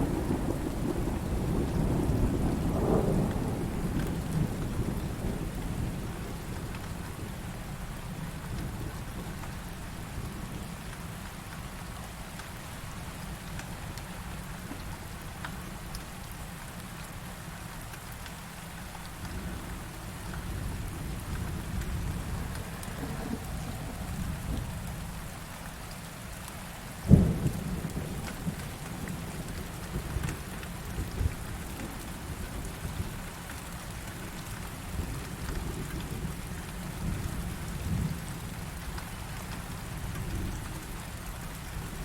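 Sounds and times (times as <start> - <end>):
heavy rain: 0.0 - 42.0
thunder rumbling: 20.6 - 25.2.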